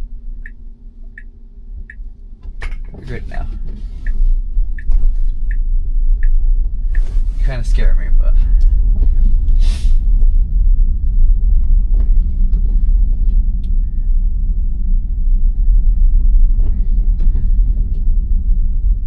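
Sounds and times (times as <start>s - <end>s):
tyre and road noise in car: 0.0s - 19.0s
brief hiss: 9.6s - 10.0s.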